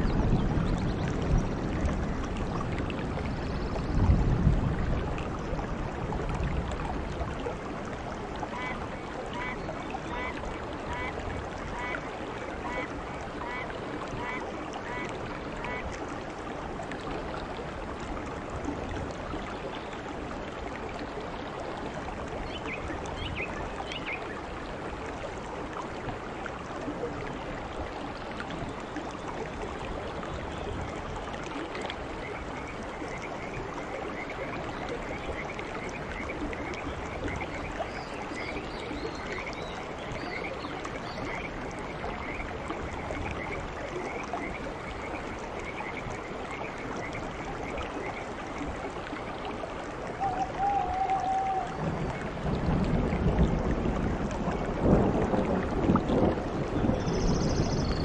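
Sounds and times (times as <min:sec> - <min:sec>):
heavy rain on foliage: 0:00.0 - 0:58.0
small creature calling: 0:50.2 - 0:51.8.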